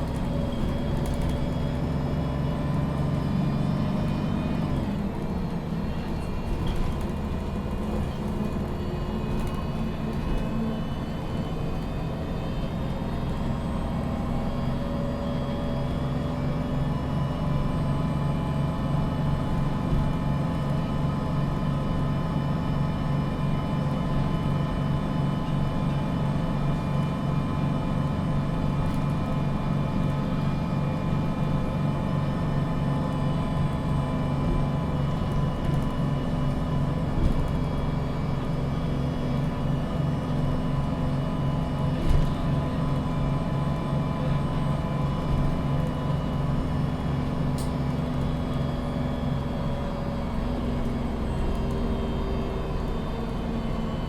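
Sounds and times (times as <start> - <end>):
bus engine droning: 0.0 - 54.0.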